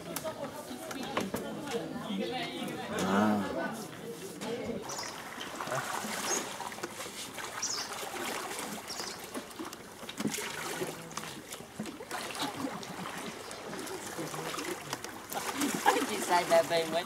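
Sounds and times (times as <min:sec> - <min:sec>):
water trickling and splashing: 0:03.8 - 0:17.0.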